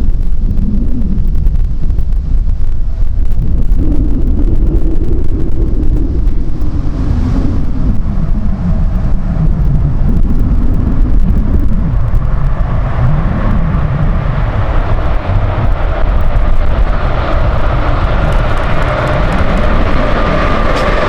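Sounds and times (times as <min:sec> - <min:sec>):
train rumbling past: 0:11.8 - 0:21.0.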